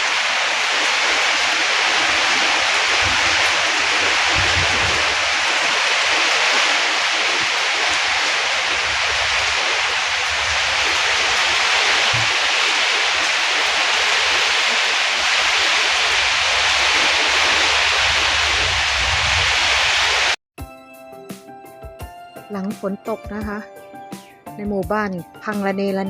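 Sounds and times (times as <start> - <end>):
heavy rain pouring: 0.0 - 20.4
wind gusts buffeting microphone: 0.0 - 20.4.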